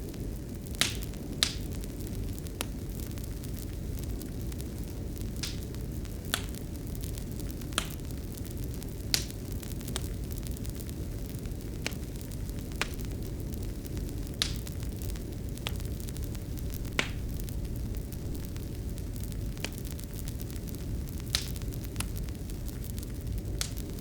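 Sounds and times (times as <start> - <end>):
fire burning low rumble: 0.0 - 24.0
fire crackles and pops: 0.0 - 24.0.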